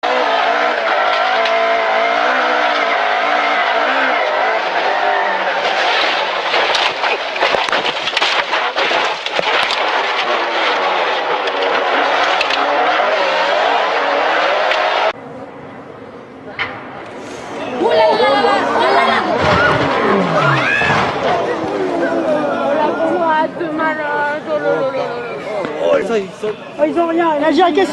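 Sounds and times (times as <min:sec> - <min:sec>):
car engine revving: 0:00.0 - 0:15.2, 0:19.2 - 0:22.0
car crash knocks and crunching: 0:05.5 - 0:13.4, 0:19.3 - 0:21.9.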